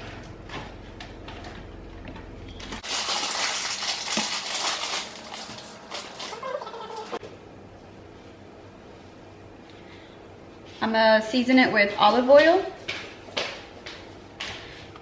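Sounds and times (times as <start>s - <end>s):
food crunching and scraping: 2.5s - 7.2s.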